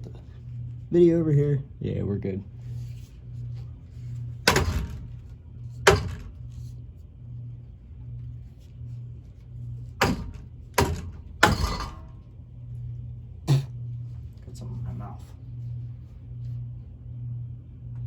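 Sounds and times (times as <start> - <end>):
ceiling fan humming: 0.0 - 18.0
hockey stick striking fan blades: 4.4 - 6.7, 9.8 - 12.3.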